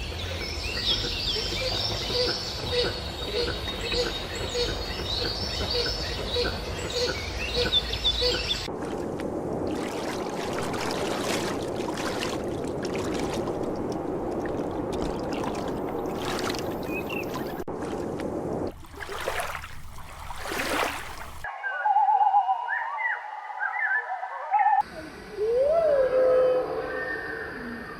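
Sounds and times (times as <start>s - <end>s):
rushing splashing water: 8.6s - 21.5s.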